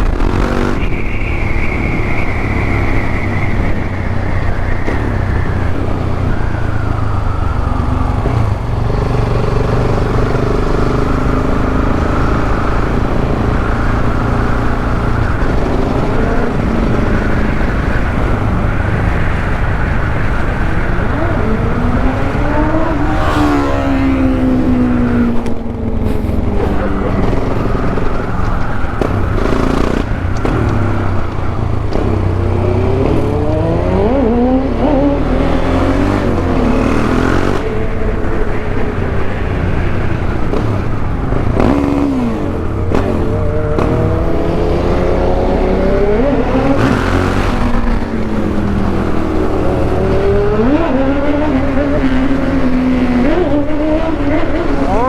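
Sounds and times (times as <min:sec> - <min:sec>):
motorcycle engine revving: 0:00.0 - 0:55.0
wind rushing: 0:11.8 - 0:54.9.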